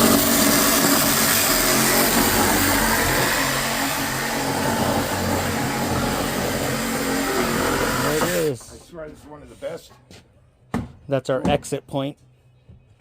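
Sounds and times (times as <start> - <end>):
cordless drill motor whirring: 0.0 - 8.5.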